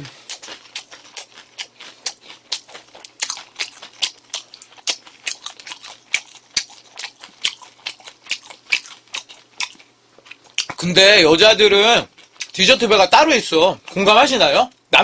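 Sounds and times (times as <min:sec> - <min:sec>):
person chewing fried chicken: 0:00.0 - 0:10.9, 0:12.1 - 0:12.7.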